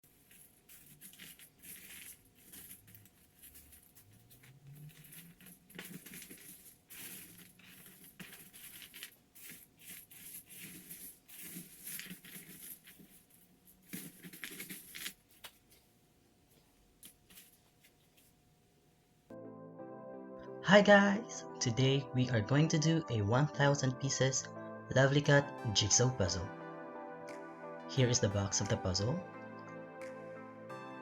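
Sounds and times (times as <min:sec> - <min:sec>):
rustling and crinkling: 0:00.0 - 0:19.2.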